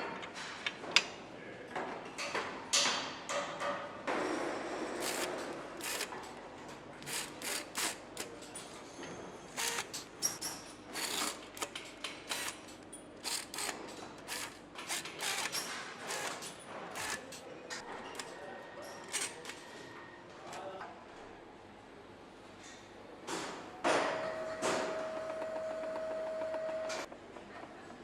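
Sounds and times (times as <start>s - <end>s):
low factory hum: 0.0s - 28.0s.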